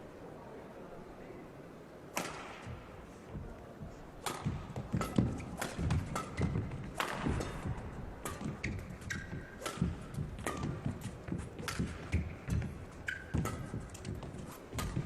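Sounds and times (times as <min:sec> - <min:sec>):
racket striking shuttlecock: 0:02.1 - 0:02.9, 0:04.2 - 0:15.0
shoe squeaks: 0:08.5 - 0:10.7, 0:12.1 - 0:14.8.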